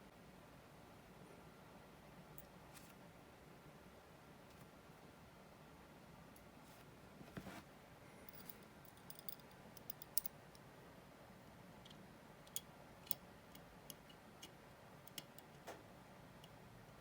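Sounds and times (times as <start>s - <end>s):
small metal tools clicking: 8.3s - 10.4s.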